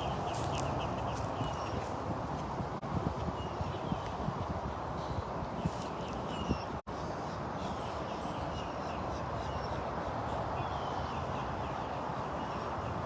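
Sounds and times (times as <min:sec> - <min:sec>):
wind on microphone: 0:00.0 - 0:06.9.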